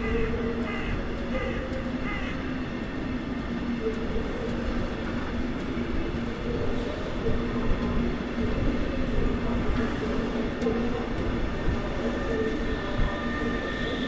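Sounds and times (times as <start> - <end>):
droning hum: 0.0 - 14.0
electric train rumbling: 0.0 - 14.0.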